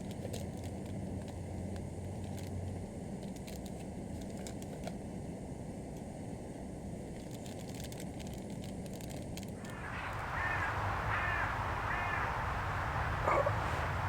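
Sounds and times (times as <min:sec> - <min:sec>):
steady background hiss: 0:09.5 - 0:14.0
bird cawing: 0:09.6 - 0:14.0.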